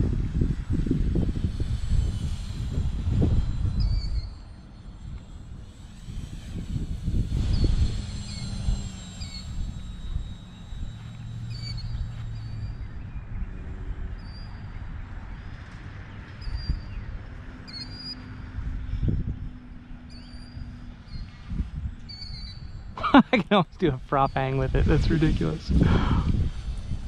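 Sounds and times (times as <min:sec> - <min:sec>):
wind on microphone: 0:00.0 - 0:17.6, 0:18.3 - 0:27.0
model plane motor humming: 0:00.0 - 0:23.2, 0:23.9 - 0:27.0
small bird chirping: 0:03.3 - 0:14.9, 0:22.0 - 0:22.9.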